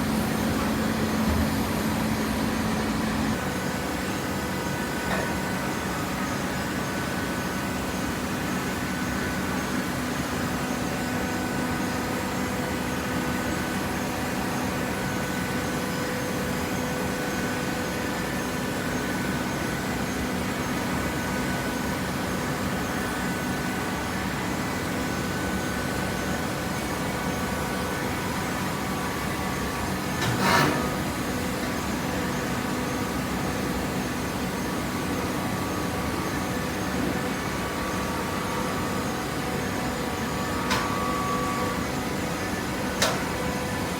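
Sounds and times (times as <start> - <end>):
gasoline engine running: 0.0 - 3.4.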